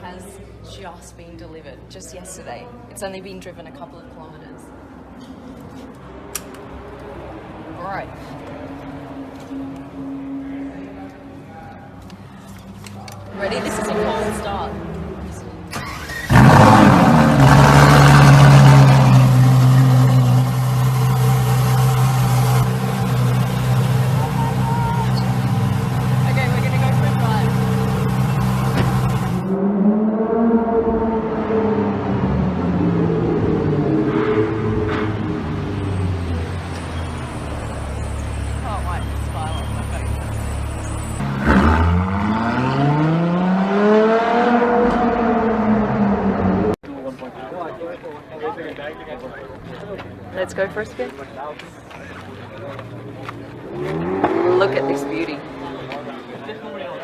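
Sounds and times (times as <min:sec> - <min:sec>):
car engine accelerating hard: 0:13.2 - 0:46.8, 0:52.1 - 0:56.5
car engine cold start and idle: 0:15.4 - 0:29.5.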